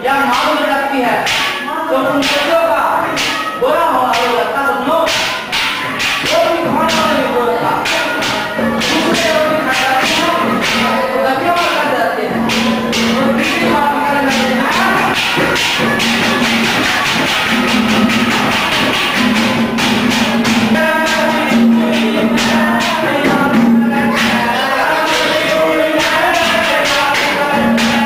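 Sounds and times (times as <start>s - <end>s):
fast jangling percussion: 11.6s - 28.0s.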